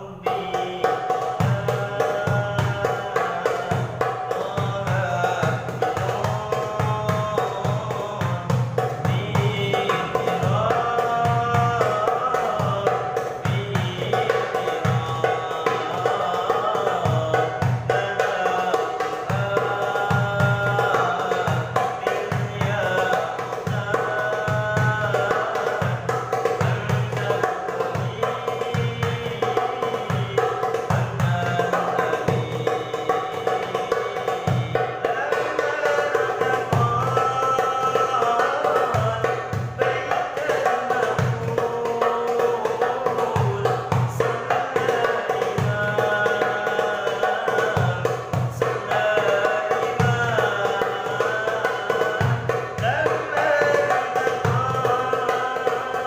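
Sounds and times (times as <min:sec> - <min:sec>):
darbuka drum beating: 0:00.0 - 0:56.0
person singing devotional song: 0:00.0 - 0:56.0.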